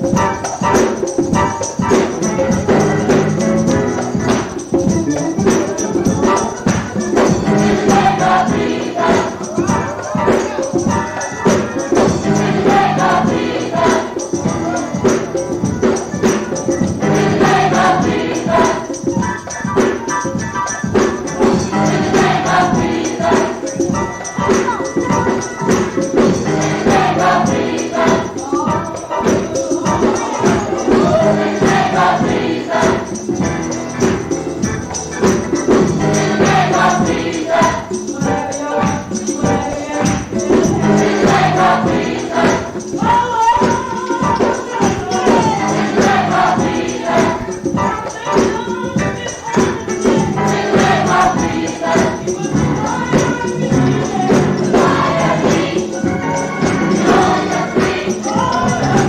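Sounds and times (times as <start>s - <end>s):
gospel choir singing: 0.0s - 59.0s
tambourine: 0.0s - 59.0s.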